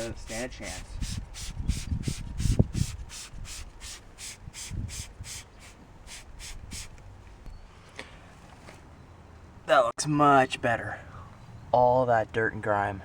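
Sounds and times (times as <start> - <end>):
short hissing strokes: 0.6 - 7.0.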